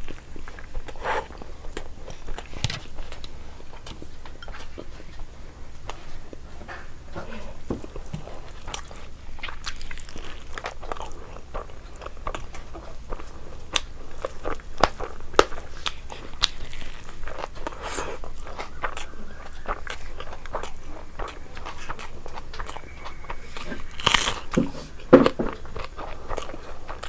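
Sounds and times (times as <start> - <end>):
chewing with wet mouth clicks: 0.0 - 27.0
sharp crunches: 19.7 - 27.0.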